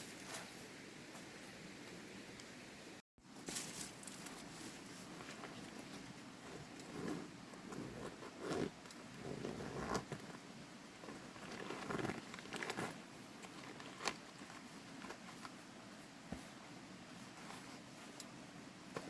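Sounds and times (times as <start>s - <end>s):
rustling scrapes: 3.4s - 18.2s.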